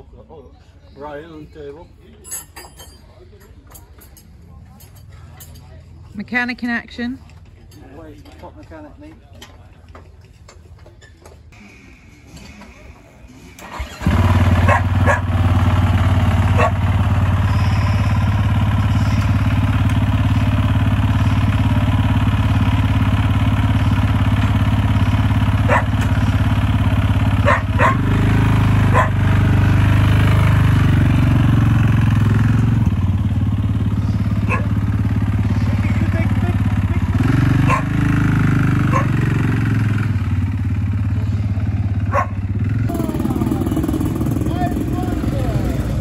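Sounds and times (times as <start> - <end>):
motocross engine idling: 13.6 - 46.0.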